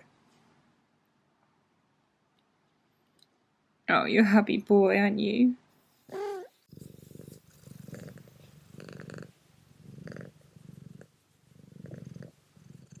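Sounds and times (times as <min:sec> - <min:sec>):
cat purring: 0:06.0 - 0:13.0.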